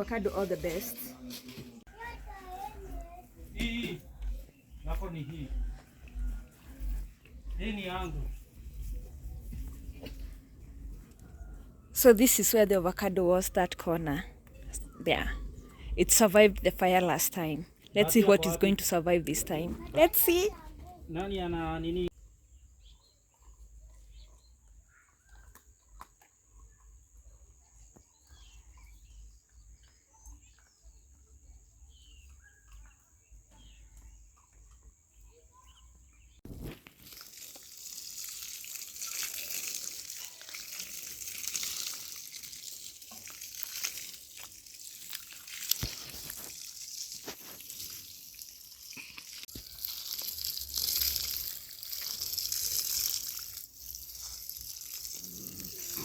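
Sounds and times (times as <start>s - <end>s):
water hissing: 36.9s - 56.0s.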